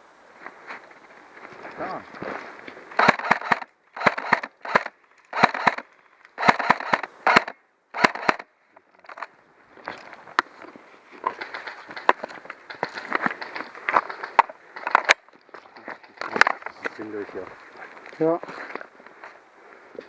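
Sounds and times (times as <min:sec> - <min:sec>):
airsoft guns firing: 0:03.0 - 0:05.8, 0:06.4 - 0:08.4.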